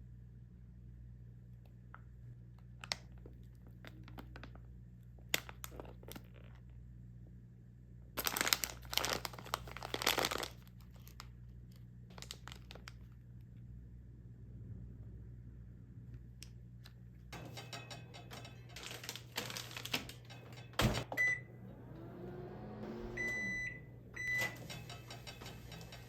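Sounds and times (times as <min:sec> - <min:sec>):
microwave oven humming: 0:00.0 - 0:26.0
microwave door shutting: 0:17.4 - 0:26.0
control panel beeps: 0:21.0 - 0:21.6, 0:22.8 - 0:26.0.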